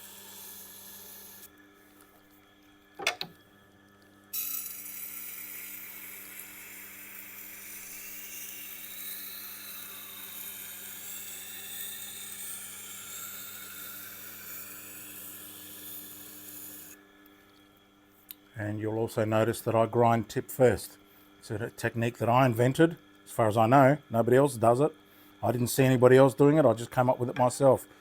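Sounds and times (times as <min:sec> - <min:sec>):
sharpening wheel motor humming: 0:00.0 - 0:02.1, 0:04.3 - 0:17.0.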